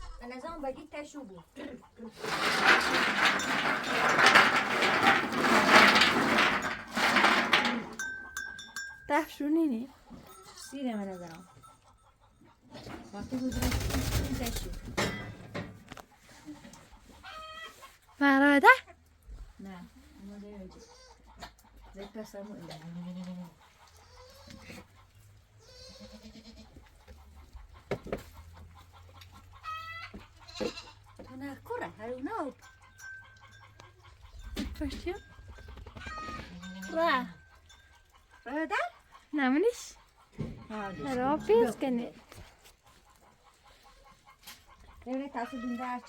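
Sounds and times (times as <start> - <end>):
goats bleating: 25.6 - 26.8.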